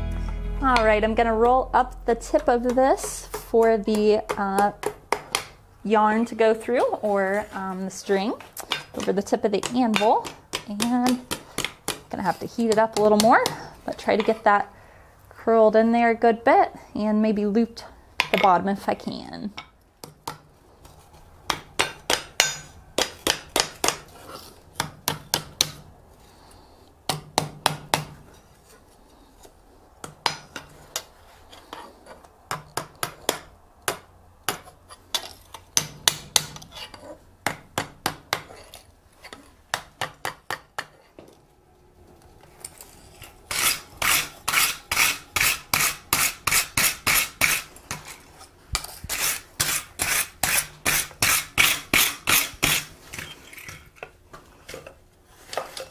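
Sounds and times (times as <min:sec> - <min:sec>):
hammer striking steel on anvil: 0:21.8 - 0:24.0.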